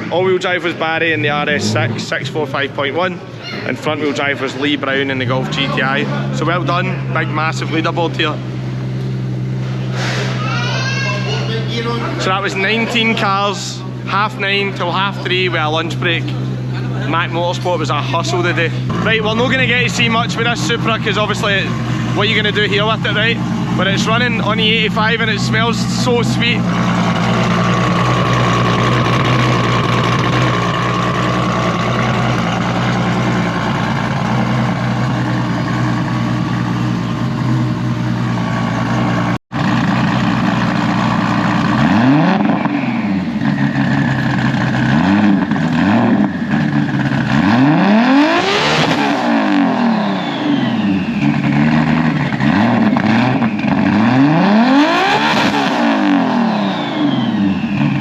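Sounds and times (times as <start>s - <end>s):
car engine revving on dyno: 14.8s - 58.0s.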